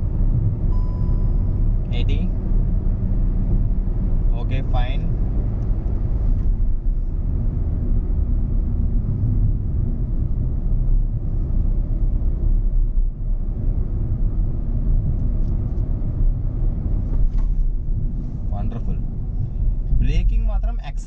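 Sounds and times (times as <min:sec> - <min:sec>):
road and engine rumble in car: 0:00.0 - 0:21.0.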